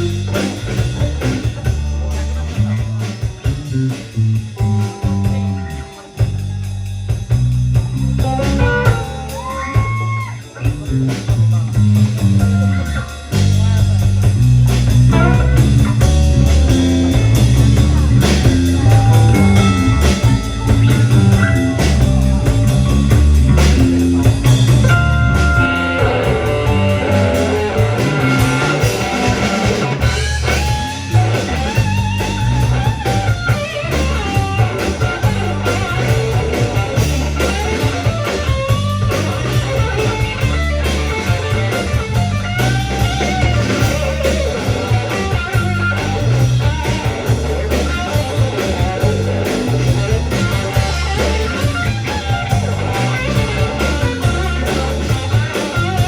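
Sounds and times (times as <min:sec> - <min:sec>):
bass guitar: 0:00.0 - 0:56.0
drum kit: 0:00.0 - 0:56.0
electric guitar lead: 0:00.0 - 0:56.0.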